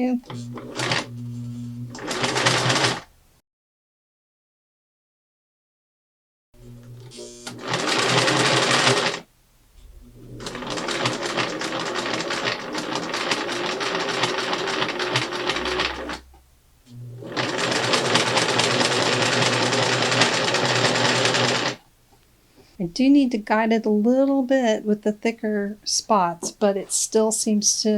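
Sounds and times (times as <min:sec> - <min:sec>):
sewing machine stitching: 0:00.0 - 0:01.2, 0:01.8 - 0:03.1, 0:06.9 - 0:09.3, 0:10.1 - 0:16.3, 0:17.0 - 0:21.8
sewing machine motor hum: 0:00.2 - 0:03.1, 0:06.6 - 0:21.8.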